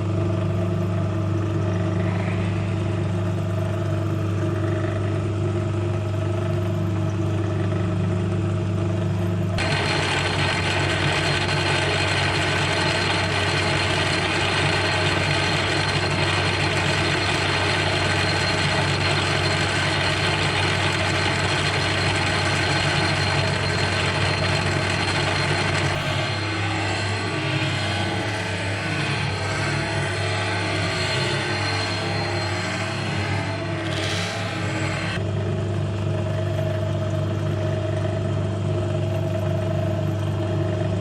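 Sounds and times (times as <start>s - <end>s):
machining with high whine: 0.0s - 8.7s, 9.6s - 36.1s
machine tool humming: 9.6s - 35.3s.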